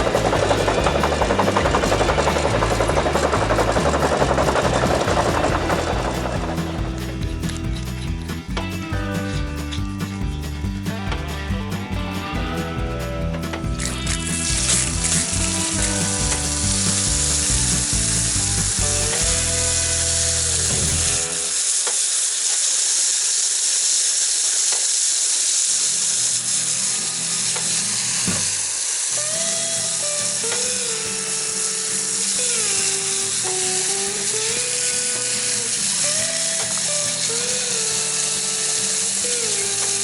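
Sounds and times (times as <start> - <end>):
excavator engine and hydraulics: 0.0 - 22.8
steady loud hiss: 14.2 - 40.0.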